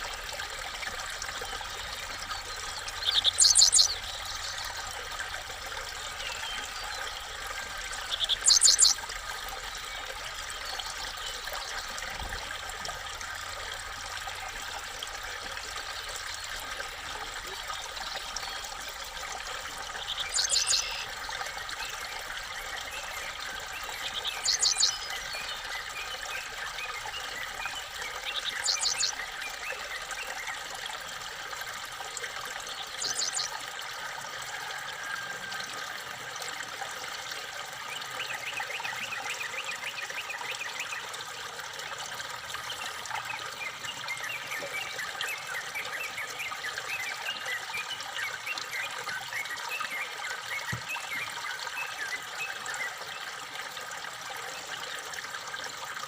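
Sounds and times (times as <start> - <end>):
small bird calling: 2.4 - 4.8, 6.0 - 9.0, 20.0 - 21.1, 23.3 - 25.7, 28.3 - 29.2, 32.8 - 33.6.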